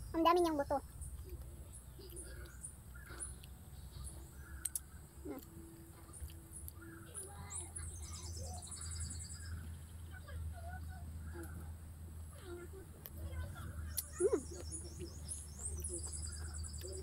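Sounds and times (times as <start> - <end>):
birds chirping: 0.0 - 17.0
bird trill: 1.9 - 10.3, 13.7 - 17.0.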